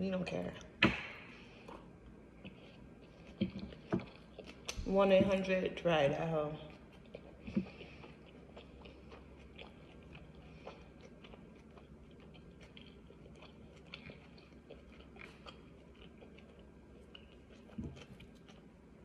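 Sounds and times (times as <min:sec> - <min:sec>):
faint chewing: 0:00.5 - 0:19.0.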